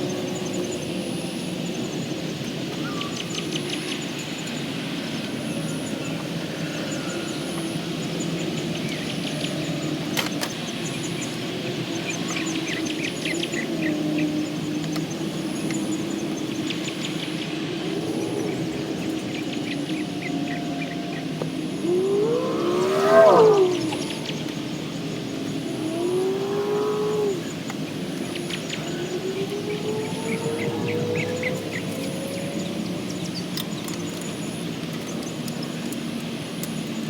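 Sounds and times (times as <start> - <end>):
birds chirping: 10.6 - 35.9
low hum: 17.8 - 33.3.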